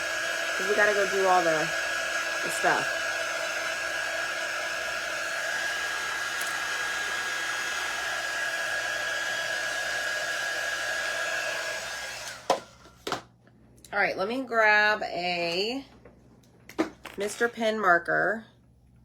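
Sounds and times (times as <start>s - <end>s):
hot-air dryer blowing with whine: 0.0s - 13.3s.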